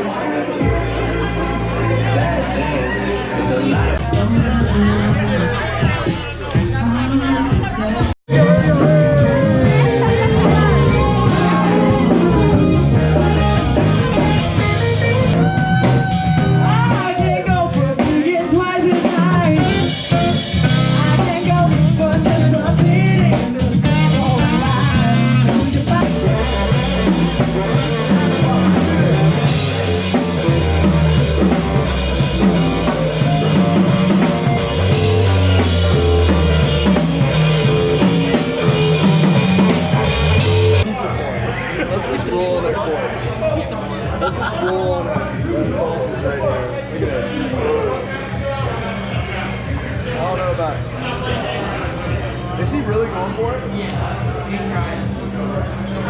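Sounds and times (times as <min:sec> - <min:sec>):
person singing: 0:01.9 - 0:40.8
drum kit beat: 0:03.8 - 0:40.9
electric guitar: 0:08.4 - 0:17.0.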